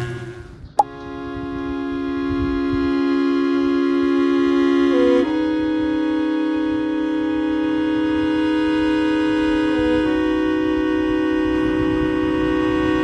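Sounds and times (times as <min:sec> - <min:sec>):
organ-like keyboard chords: 0:00.1 - 0:13.0.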